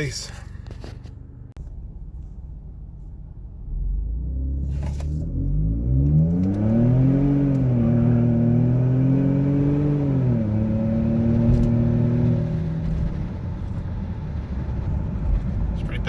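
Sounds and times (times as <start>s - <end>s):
truck engine accelerating hard: 3.6s - 16.0s.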